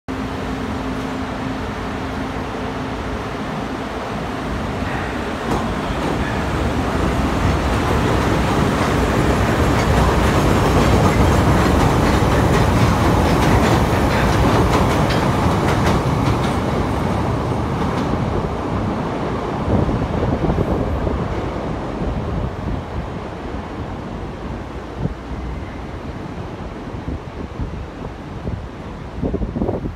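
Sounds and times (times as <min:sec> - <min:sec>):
wheels rumbling on rail: 0:00.1 - 0:29.9
clicking over rail joints: 0:07.8 - 0:16.8.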